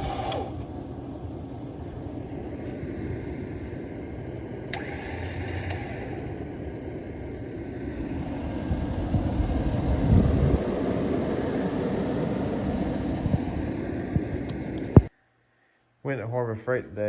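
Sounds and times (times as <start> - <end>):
vehicle engine and road noise: 0.0 - 15.1.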